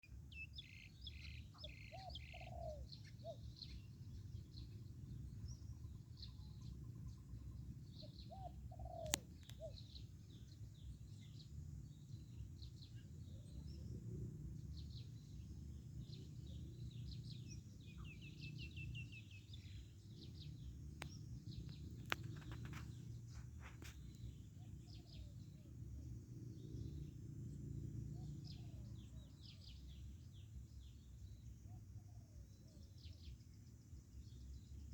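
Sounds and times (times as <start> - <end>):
small birds chirping: 0.1 - 34.9
dove cooing: 1.9 - 3.4, 8.3 - 9.8
low background rumble: 9.4 - 31.6.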